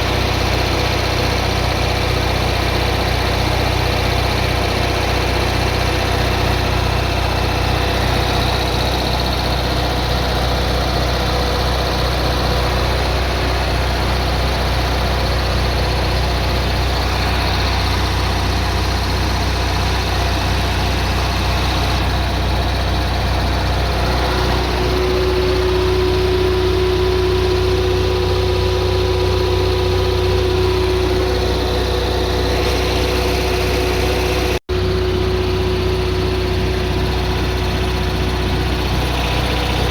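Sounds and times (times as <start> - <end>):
generator engine drone: 0.0 - 39.9
steady higher tone: 22.0 - 39.9.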